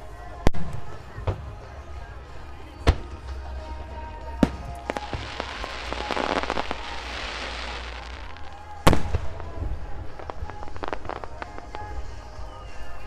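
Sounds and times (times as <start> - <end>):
fireworks crackling shower: 0.0 - 13.0.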